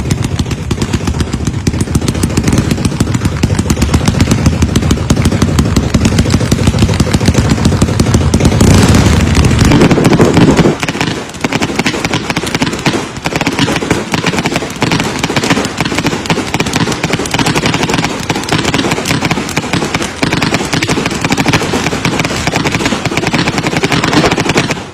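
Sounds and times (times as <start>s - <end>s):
heavy low rumble: 0.0s - 11.4s
fireworks crackling: 0.0s - 24.9s.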